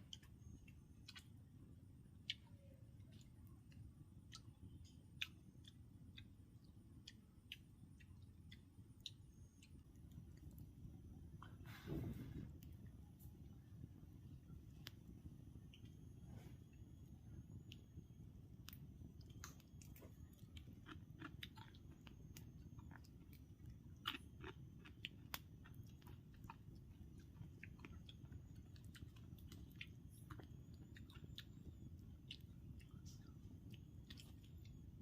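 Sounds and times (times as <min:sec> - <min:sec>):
small clicks and snaps: 0:00.0 - 0:01.5, 0:14.7 - 0:16.0, 0:17.4 - 0:35.0
low background rumble: 0:00.0 - 0:35.0.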